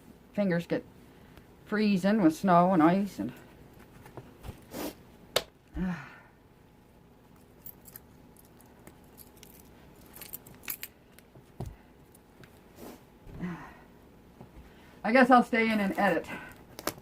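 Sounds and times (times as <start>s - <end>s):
gloves and clothing rustling: 2.6s - 5.0s, 15.5s - 17.0s.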